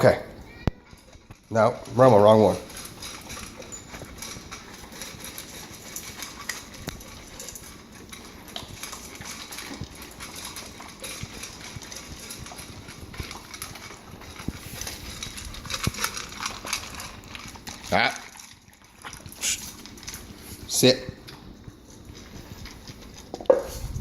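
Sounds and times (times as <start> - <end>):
pets chewing: 0.0 - 24.0
bowl clicks and knocks: 23.4 - 23.8.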